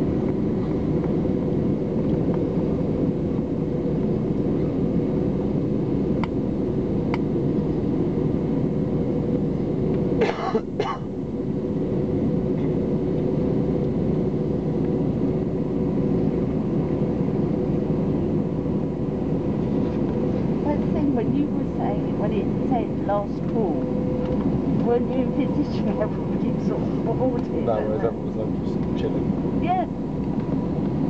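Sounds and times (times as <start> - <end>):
airliner cabin hum: 0.0 - 31.0
person coughing: 10.2 - 11.1.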